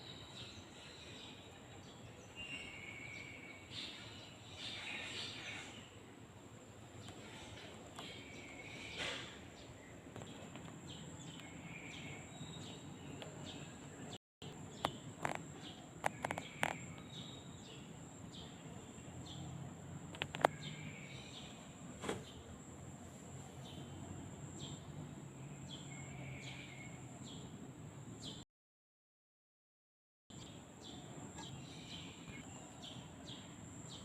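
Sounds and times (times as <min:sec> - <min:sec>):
birds chirping: 0:00.0 - 0:22.7, 0:30.3 - 0:34.0.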